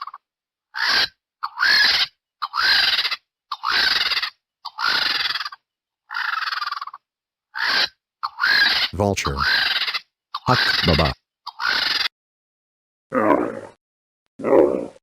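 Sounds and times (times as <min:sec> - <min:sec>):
vulture screeching: 0:00.7 - 0:12.1.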